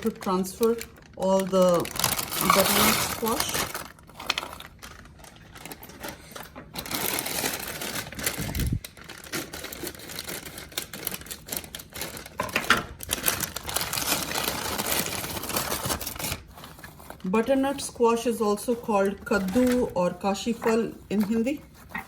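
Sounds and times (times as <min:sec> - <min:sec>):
frozen pieces clattering into bowl: 0:00.0 - 0:16.2.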